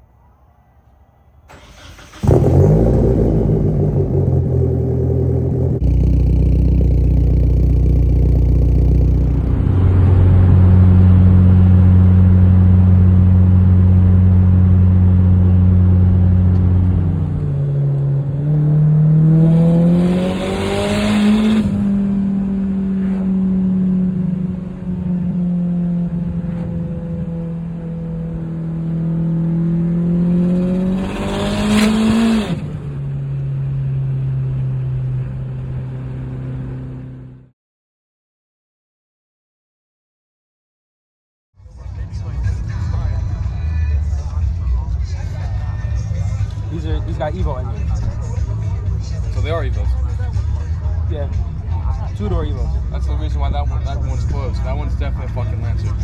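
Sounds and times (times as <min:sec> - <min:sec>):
car engine starting and idling: 0:01.4 - 0:37.5, 0:41.7 - 0:56.0
engine revving: 0:01.5 - 0:37.5.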